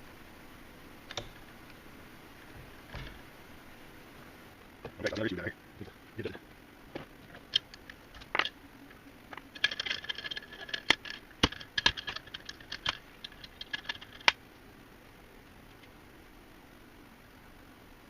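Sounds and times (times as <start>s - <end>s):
metal parts clicking and clinking: 7.2s - 8.6s, 9.3s - 14.4s.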